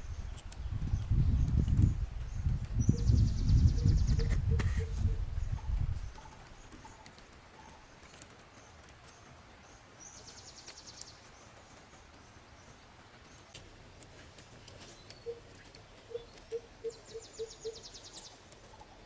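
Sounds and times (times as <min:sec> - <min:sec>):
faint clicks: 0:00.2 - 0:02.9, 0:05.7 - 0:16.6, 0:18.1 - 0:19.0.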